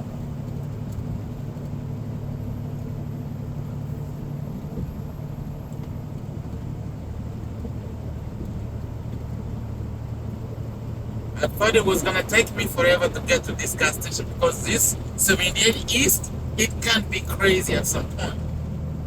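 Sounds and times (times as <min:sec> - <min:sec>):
road noise: 0:11.0 - 0:19.0
diesel truck engine: 0:11.1 - 0:19.0.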